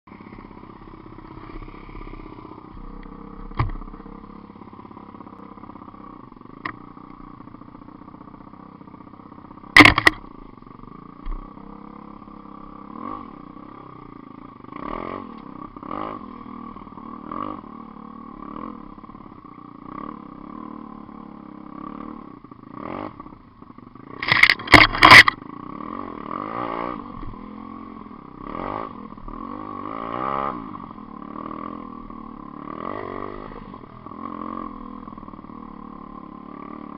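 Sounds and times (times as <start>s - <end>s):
motorbike engine idling: 0.1s - 36.9s
engine throttle blips: 9.6s - 10.6s, 24.2s - 25.4s.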